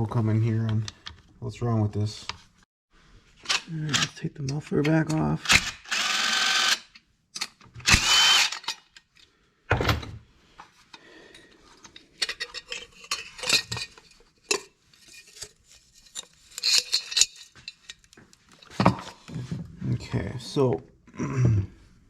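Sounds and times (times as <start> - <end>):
metal tools clinking: 11.9 - 18.8.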